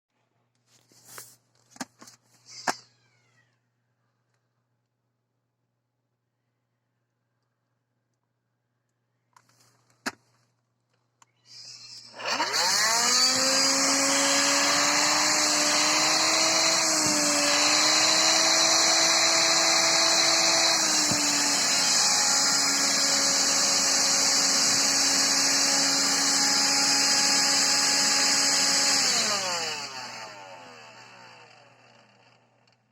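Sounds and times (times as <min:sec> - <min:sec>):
vacuum motor whining: 0:12.0 - 0:32.2.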